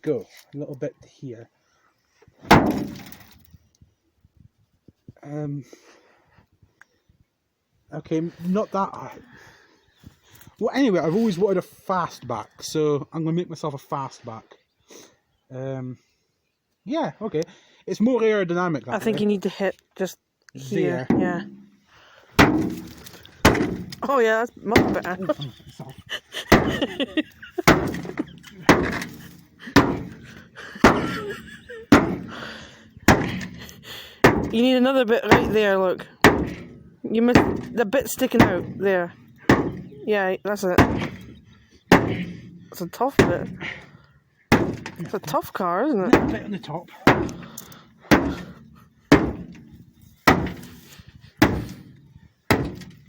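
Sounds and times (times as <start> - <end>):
axe striking sheet metal: 2.5 - 3.3, 22.4 - 24.0, 27.7 - 30.2, 31.9 - 32.3, 33.1 - 33.6, 39.5 - 39.9, 50.3 - 50.8, 52.5 - 53.0
axe striking car body: 2.5 - 3.4, 22.4 - 24.0, 26.5 - 26.8, 27.6 - 32.4, 33.1 - 33.6, 34.2 - 34.6, 36.2 - 36.8, 37.4 - 37.8, 39.5 - 39.9, 40.8 - 41.3, 41.9 - 42.4, 44.5 - 45.0, 47.1 - 47.5, 48.1 - 49.6, 50.3 - 50.8, 51.4 - 51.9, 52.5 - 53.0.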